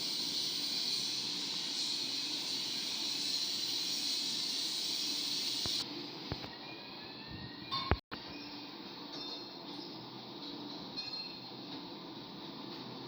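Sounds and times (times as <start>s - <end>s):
hissing rush of blast furnace: 0.0s - 5.8s.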